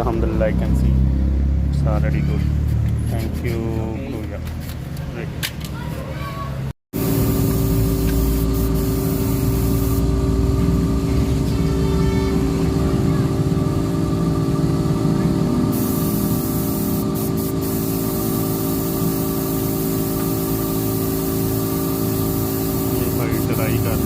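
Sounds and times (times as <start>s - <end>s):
air gun hissing: 6.9s - 10.4s, 15.7s - 24.0s
machine hum: 7.0s - 24.0s.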